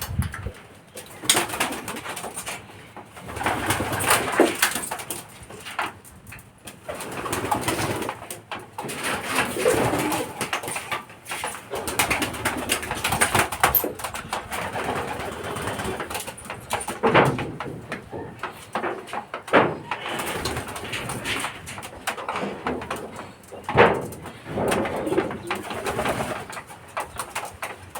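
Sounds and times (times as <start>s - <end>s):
wings fluttering: 0.0s - 5.6s, 6.8s - 17.1s, 24.2s - 27.9s
pigeons cooing: 17.6s - 27.4s.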